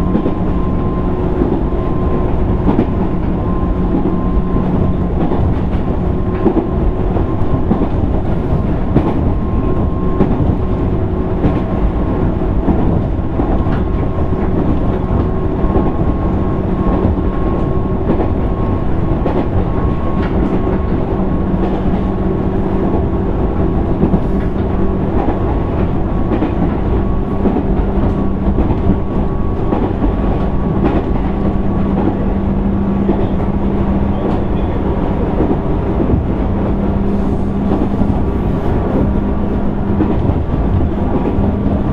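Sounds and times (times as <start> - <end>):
train running rumble: 0.0 - 41.9
faint rail-joint clicks: 20.2 - 21.0.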